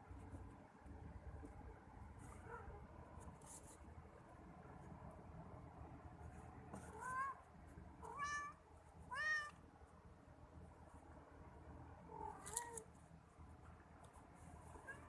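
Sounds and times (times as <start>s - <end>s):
cat meowing: 8.0s - 9.6s.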